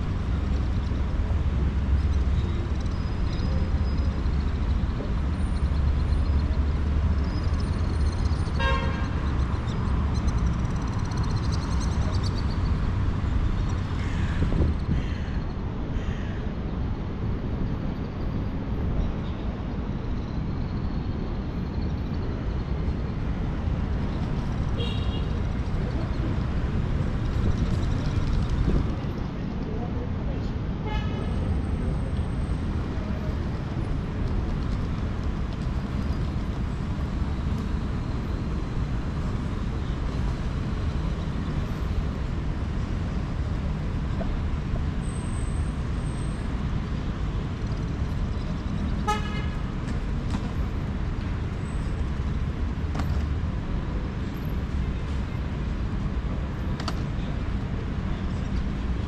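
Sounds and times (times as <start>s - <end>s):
street traffic rumble: 0.0s - 59.0s
car horn toot: 8.6s - 9.0s, 49.0s - 49.6s.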